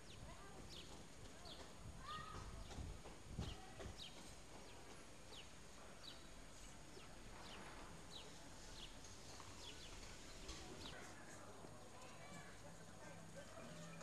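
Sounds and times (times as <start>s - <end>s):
faint bird chirping: 3.4s - 14.0s.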